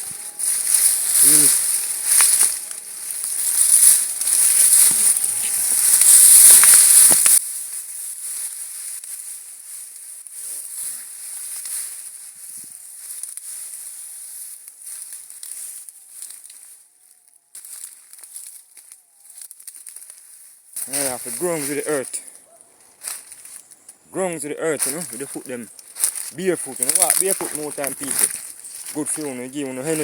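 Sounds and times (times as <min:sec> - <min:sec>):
high-pitched hiss: 0:00.0 - 0:09.3, 0:20.8 - 0:22.3, 0:23.0 - 0:30.0
rustling and crackling: 0:00.0 - 0:16.8, 0:17.6 - 0:30.0.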